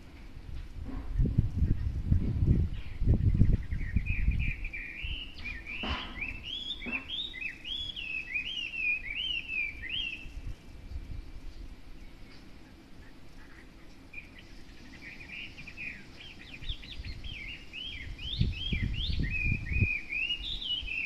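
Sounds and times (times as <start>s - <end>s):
songbird whistling: 2.8s - 10.6s, 14.1s - 21.0s.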